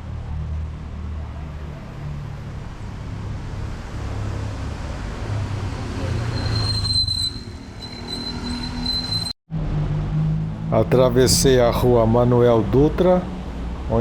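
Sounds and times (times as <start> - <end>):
cars passing on wet road: 0.0 - 6.7.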